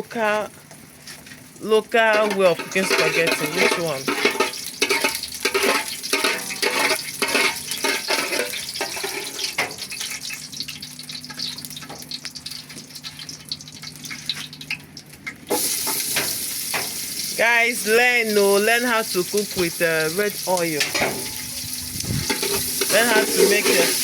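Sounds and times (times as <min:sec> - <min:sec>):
spoon scraping a pot: 0:02.1 - 0:09.6, 0:22.2 - 0:24.0.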